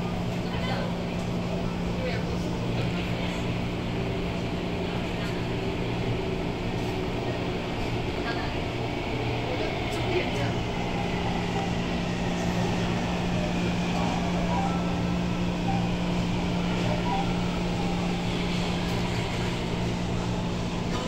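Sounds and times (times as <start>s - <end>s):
low engine drone: 9.2s - 21.0s.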